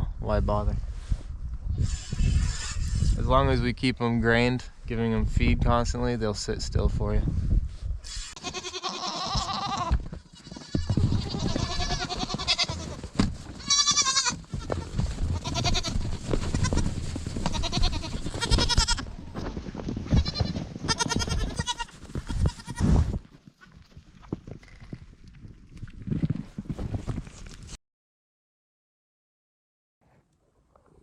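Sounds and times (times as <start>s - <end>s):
goats bleating: 8.3s - 19.1s, 20.1s - 22.9s.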